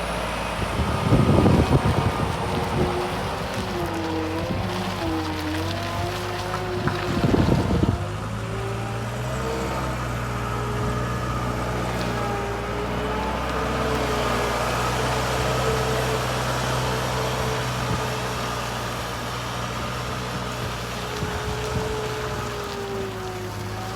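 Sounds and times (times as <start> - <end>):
skid loader engine running: 0.0 - 23.9.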